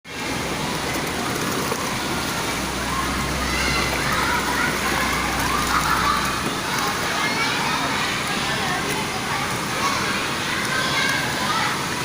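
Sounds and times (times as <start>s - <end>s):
faint voices talking: 0.1s - 12.0s
water rushing: 0.1s - 12.0s.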